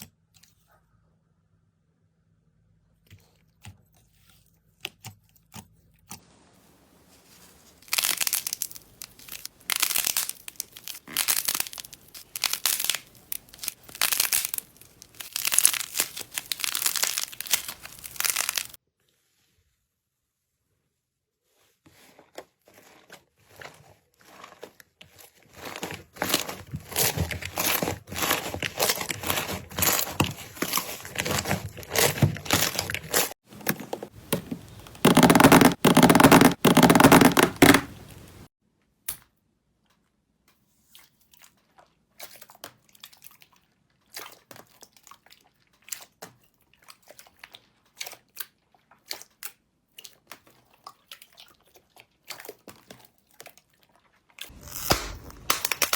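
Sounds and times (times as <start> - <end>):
slime crackling and popping: 7.8 - 18.8, 25.6 - 33.4, 34.3 - 38.5, 54.6 - 55.9.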